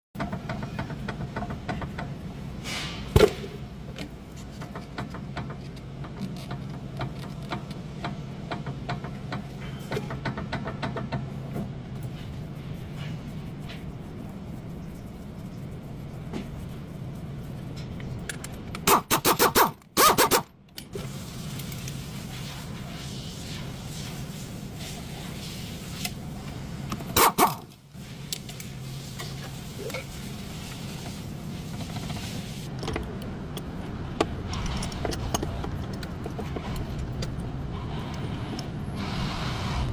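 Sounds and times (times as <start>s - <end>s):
engine clicks and knocks: 0.2s - 2.2s, 4.5s - 11.4s.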